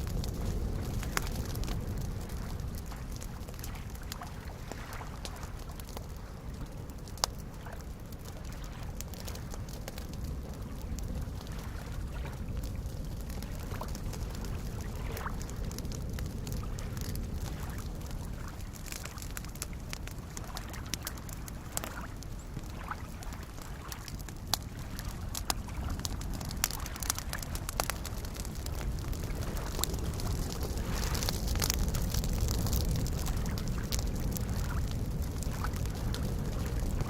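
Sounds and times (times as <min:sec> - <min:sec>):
campfire crackling and popping: 0:00.0 - 0:37.0
small waves lapping: 0:00.0 - 0:37.0.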